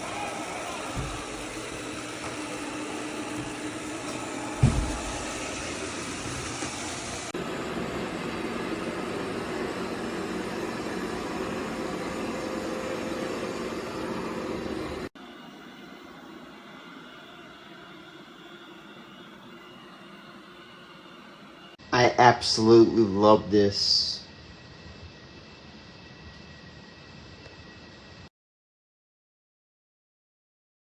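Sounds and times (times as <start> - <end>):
robot vacuum motor whirring: 0.0 - 15.1
thump: 4.6 - 5.3.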